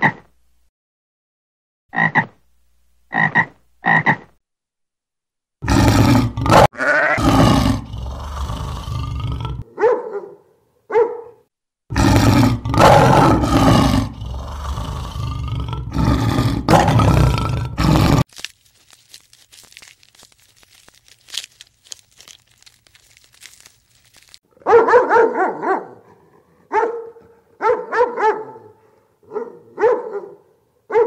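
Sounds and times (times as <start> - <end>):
lion grunting: 5.6 - 9.7, 11.9 - 18.2
lion roaring: 5.6 - 9.7, 11.9 - 18.2.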